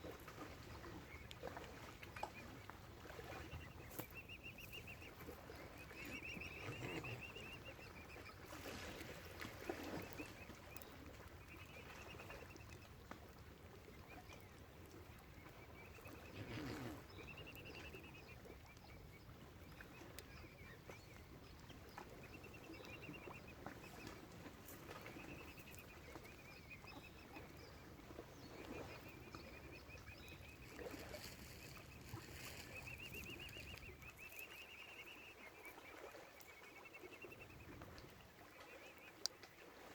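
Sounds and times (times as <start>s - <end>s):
waterfowl calls: 28.6s - 35.8s.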